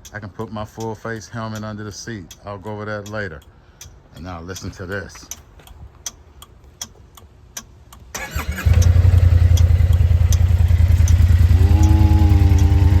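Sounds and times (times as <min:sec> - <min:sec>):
faint regular ticking: 0:00.0 - 0:13.0
scooter engine starting and idling: 0:08.1 - 0:13.0
higher steady tone: 0:09.4 - 0:13.0.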